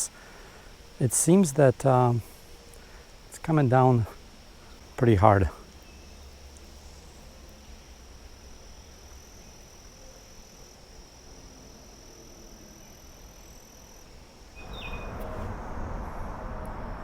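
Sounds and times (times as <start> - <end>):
insect trill: 0.0 - 17.0
low rumble: 14.6 - 17.0
rushing noise: 14.6 - 17.0.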